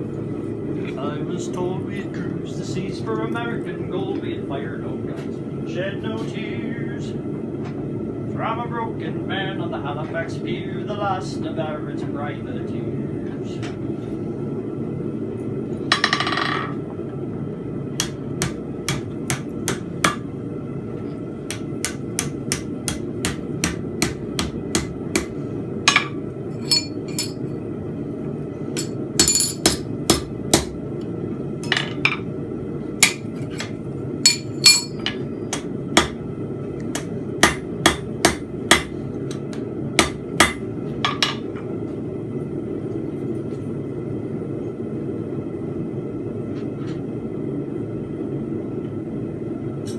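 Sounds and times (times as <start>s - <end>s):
steady low hum: 0.0s - 49.9s
hammer striking steel on anvil: 21.5s - 27.4s, 28.8s - 30.8s, 33.0s - 33.7s, 34.3s - 36.2s, 36.9s - 39.0s, 40.0s - 41.4s.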